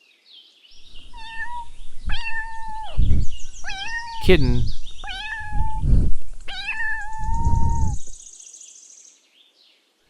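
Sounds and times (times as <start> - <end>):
low rumbling noise: 0.8 - 8.2
kitten meowing: 0.9 - 8.2.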